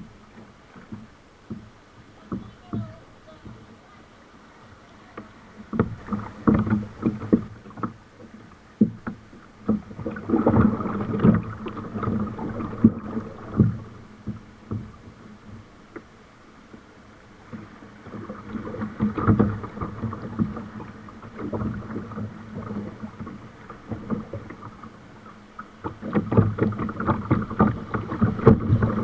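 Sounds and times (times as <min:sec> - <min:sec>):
paddle splashes: 0:00.0 - 0:29.0
water slapping against hull: 0:00.0 - 0:29.0.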